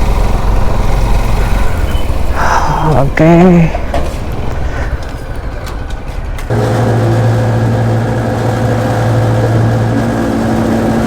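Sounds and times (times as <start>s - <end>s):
road and wind noise: 0.0s - 11.0s
vehicle engine droning: 0.0s - 11.0s.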